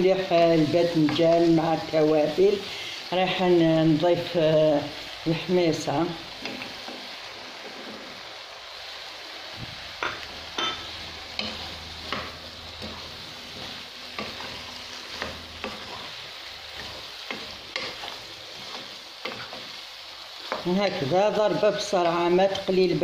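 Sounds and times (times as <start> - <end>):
food sizzling in a pan: 0.0 - 23.0
wooden spatula scraping a pan: 6.3 - 8.2, 9.7 - 22.6.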